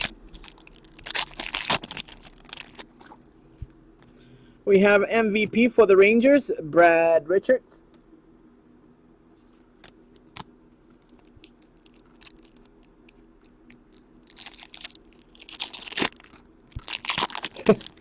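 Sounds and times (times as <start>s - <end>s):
wrapper tearing and crinkling: 0.0s - 3.2s, 11.0s - 18.0s.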